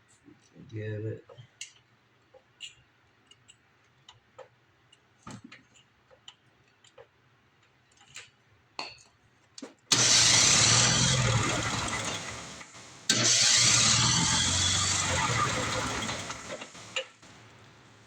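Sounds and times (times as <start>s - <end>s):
faint clicks and taps: 1.2s - 9.8s
two-stroke engine cranking: 9.9s - 17.5s.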